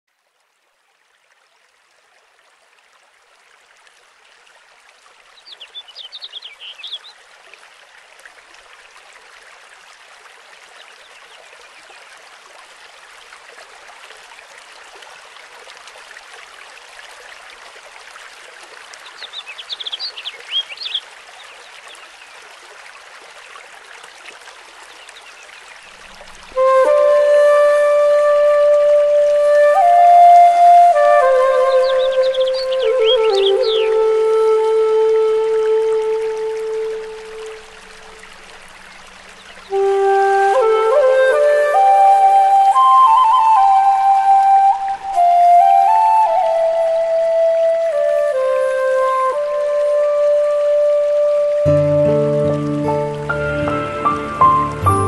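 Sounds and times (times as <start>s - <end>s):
stream running water: 0.1s - 55.0s
bird chirps: 5.4s - 7.1s, 19.0s - 22.0s, 31.6s - 34.0s.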